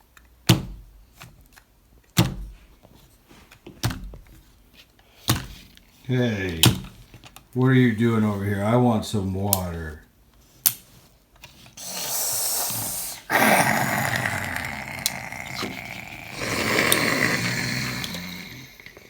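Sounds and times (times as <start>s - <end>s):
rasping dinosaur growls: 11.8s - 19.0s.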